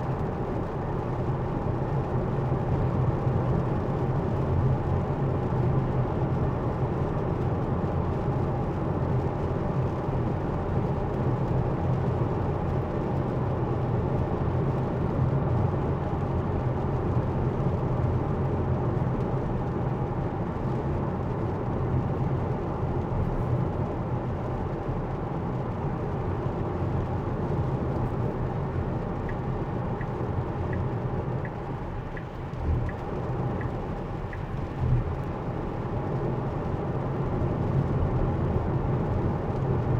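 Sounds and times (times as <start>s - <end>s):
tyre and road noise in car: 0.0s - 39.9s
turn signal ticking: 29.0s - 35.7s.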